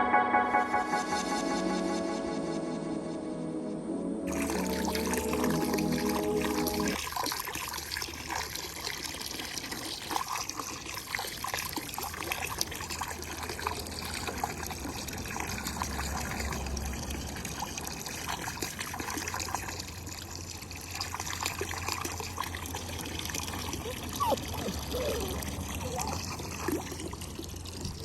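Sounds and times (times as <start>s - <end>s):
water trickling: 4.3s - 28.0s.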